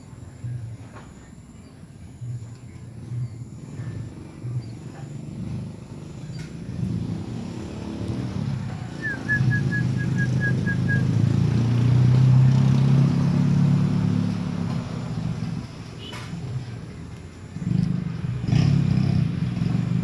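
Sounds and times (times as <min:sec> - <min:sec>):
vehicle engine passing: 0:05.4 - 0:20.0
high chirps: 0:09.0 - 0:11.1.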